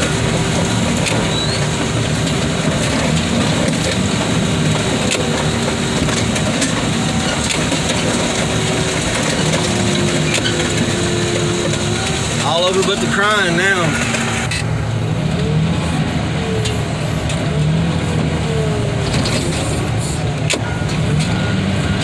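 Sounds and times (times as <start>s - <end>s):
metal cracking and popping: 0.0s - 14.7s
car crusher engine running: 0.0s - 22.0s.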